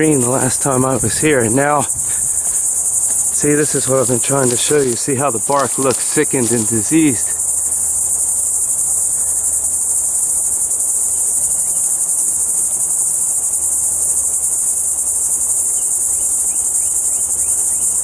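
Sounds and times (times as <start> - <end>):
insects chorus high-pitched hiss: 0.0 - 18.0.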